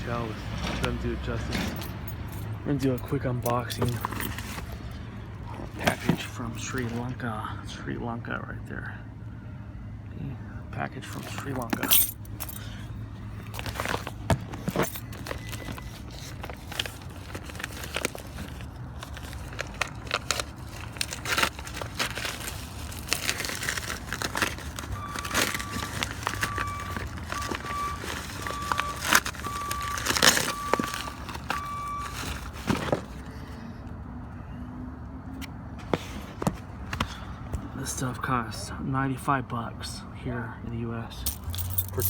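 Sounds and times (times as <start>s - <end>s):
packaging crinkling and rustling: 3.5s - 5.0s, 13.4s - 33.4s.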